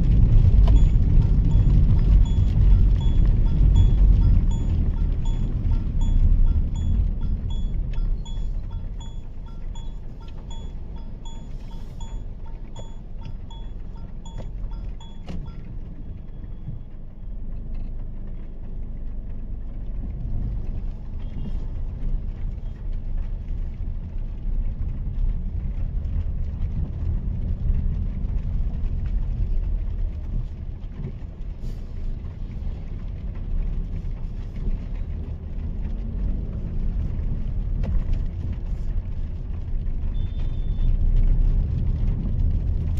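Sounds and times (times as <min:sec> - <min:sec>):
turn indicator ticking: 0:00.0 - 0:17.0
car engine and tyres rumbling: 0:00.0 - 0:42.9.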